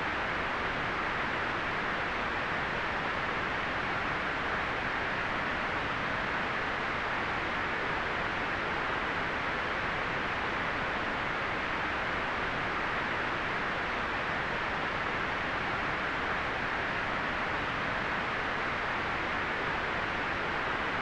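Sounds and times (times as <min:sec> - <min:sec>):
steady white noise hiss: 0:00.0 - 0:21.0.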